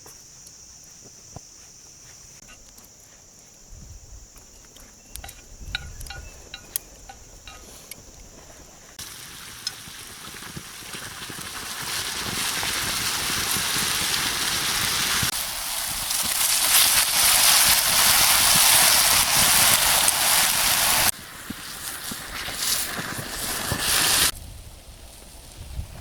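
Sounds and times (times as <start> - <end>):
hot oil sizzling: 8.9 - 24.4.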